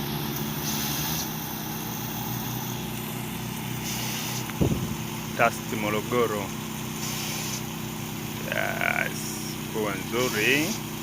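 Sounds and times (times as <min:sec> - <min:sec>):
small engine running: 0:00.0 - 0:11.0
sprinkler spraying water hiss: 0:07.0 - 0:07.6.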